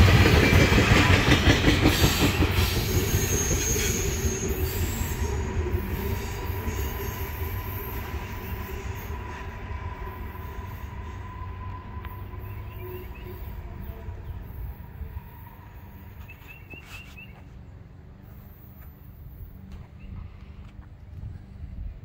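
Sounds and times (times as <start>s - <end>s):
train wheels rumbling on rails: 0.0s - 22.0s
wheel squeal: 2.0s - 17.5s.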